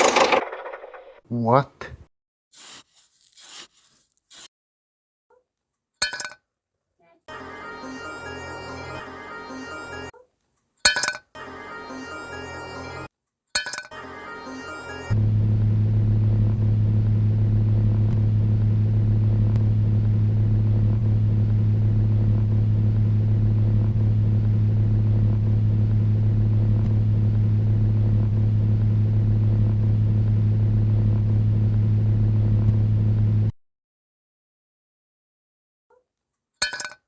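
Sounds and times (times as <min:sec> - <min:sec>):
steady low engine-like hum: 0:14.1 - 0:33.5.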